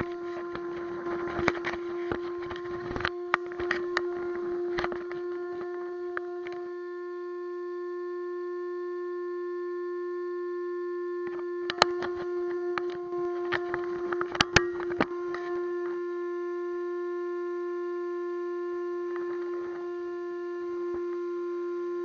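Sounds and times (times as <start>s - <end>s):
crackling clicks and knocks: 0.0s - 6.7s, 11.2s - 15.6s
high electric motor whine: 0.0s - 22.0s.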